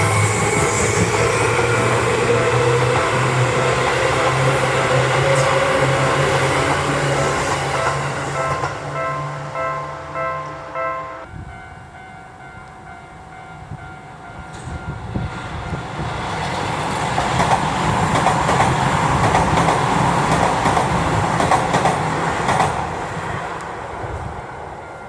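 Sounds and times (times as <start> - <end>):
electric train passing: 0.0 - 25.0
wheels clacking over rail joints: 16.1 - 23.1.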